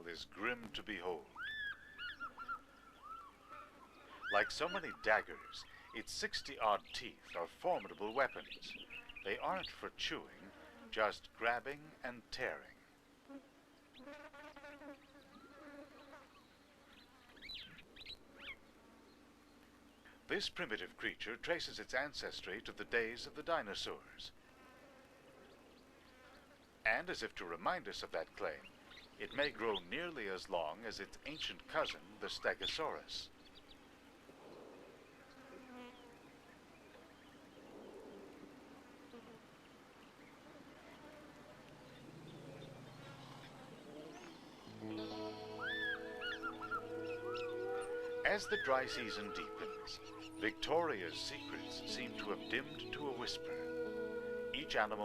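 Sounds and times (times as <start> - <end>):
bird-like chirps: 1.4 - 6.0, 41.8 - 50.5
insect buzz: 13.2 - 19.4, 33.8 - 48.3.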